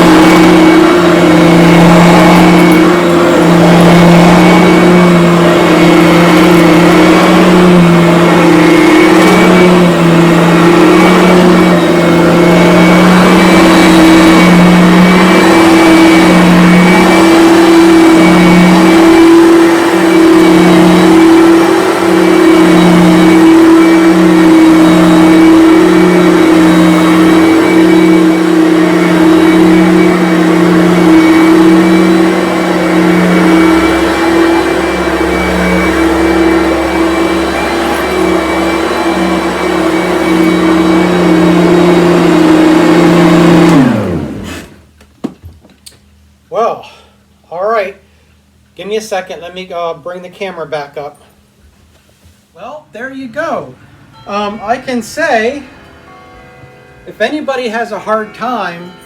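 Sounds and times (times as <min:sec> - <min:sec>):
vacuum cleaner running on carpet: 0:00.0 - 0:44.9.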